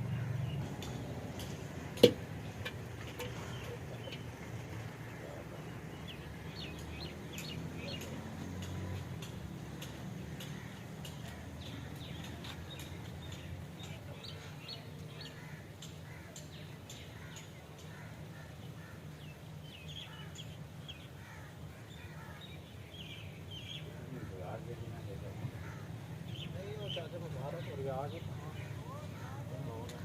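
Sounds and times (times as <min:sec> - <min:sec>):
birds chirping and clicking: 0:00.0 - 0:20.3.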